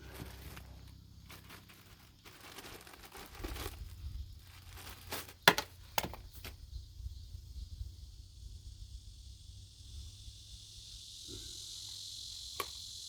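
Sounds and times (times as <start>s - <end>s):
rustling crinkling handling noises: 0.0s - 6.6s.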